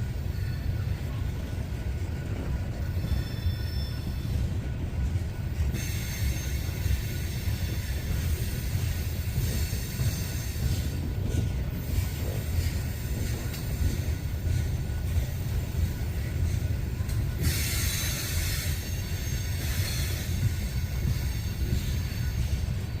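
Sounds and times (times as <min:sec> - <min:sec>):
train wheels rolling on rail: 0:00.0 - 0:23.0
high-pitched wheel squeal: 0:03.0 - 0:04.4.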